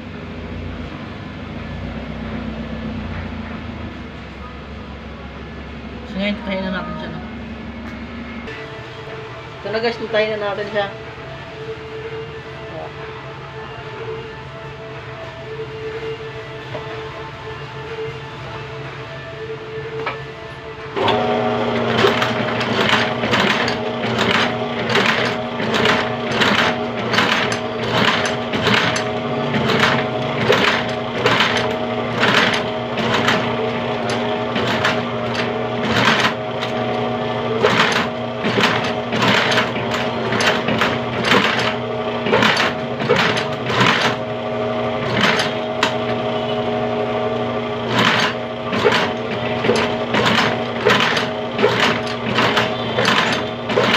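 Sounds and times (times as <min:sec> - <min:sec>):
sewing machine motor hum: 0:21.0 - 0:53.9
sewing machine needle strokes: 0:21.8 - 0:37.0, 0:37.6 - 0:44.2, 0:47.8 - 0:53.9.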